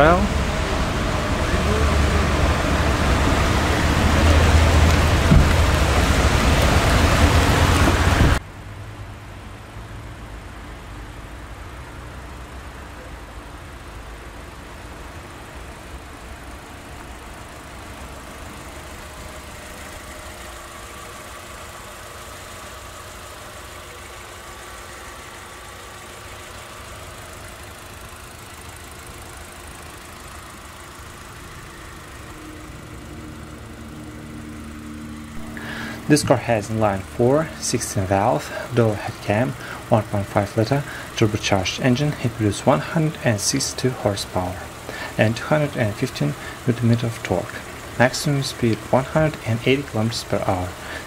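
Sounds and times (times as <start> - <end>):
loud rain: 0.0 - 8.4
car engine idling: 0.0 - 51.0.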